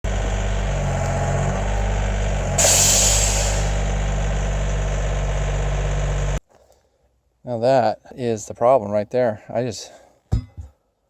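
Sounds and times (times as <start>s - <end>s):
tire blowing out: 0.0s - 6.4s
tractor diesel engine running: 0.0s - 6.4s.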